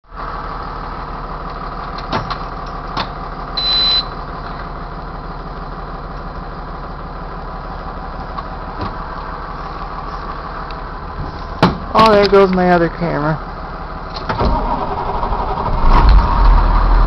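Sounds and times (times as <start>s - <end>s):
diesel bus engine idling: 0.0s - 17.0s
high-pitched beep: 3.6s - 4.2s.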